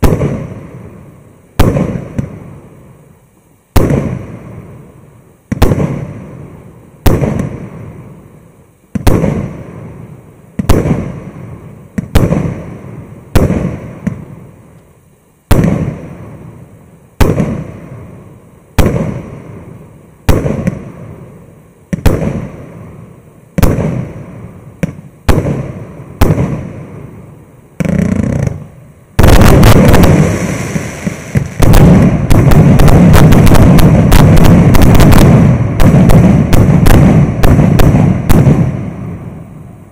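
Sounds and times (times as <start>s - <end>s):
firework shells bursting: 27.8s - 39.0s.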